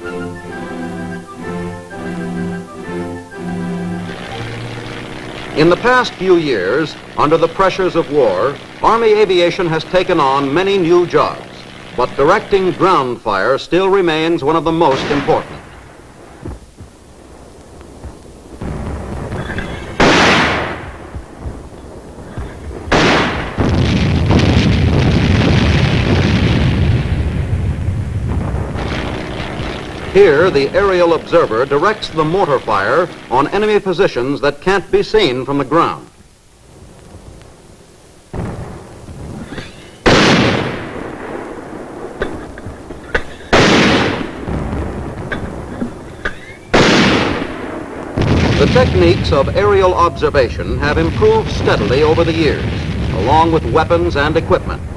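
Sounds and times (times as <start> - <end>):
loud steady rumble: 4.0 - 13.2, 20.9 - 34.0
heavy gun blasts: 14.8 - 16.0, 18.6 - 33.8, 38.3 - 46.0, 46.7 - 54.3
sharp pops: 14.8 - 26.7, 28.3 - 33.8, 36.9 - 50.2.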